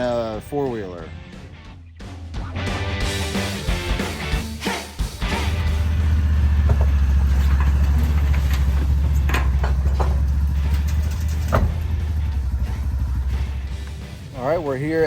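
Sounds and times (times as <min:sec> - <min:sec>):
vehicle engine and road noise: 0:05.2 - 0:15.0.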